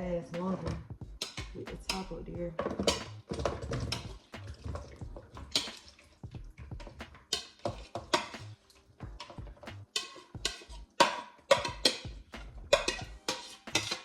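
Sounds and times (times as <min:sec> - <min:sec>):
bowls and spoon clinking: 0:00.6 - 0:14.0.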